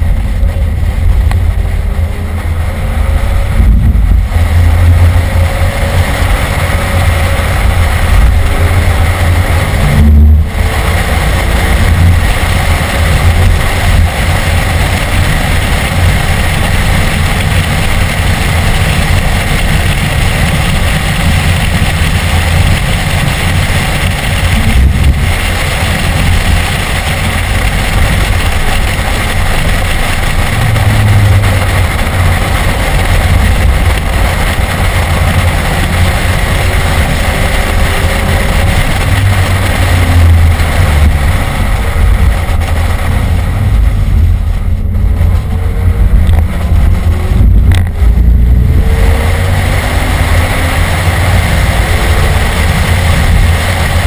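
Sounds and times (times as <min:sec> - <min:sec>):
car engine running hard: 0:00.0 - 0:54.0
tyre road noise: 0:00.0 - 0:54.0
wind noise: 0:00.0 - 0:54.0.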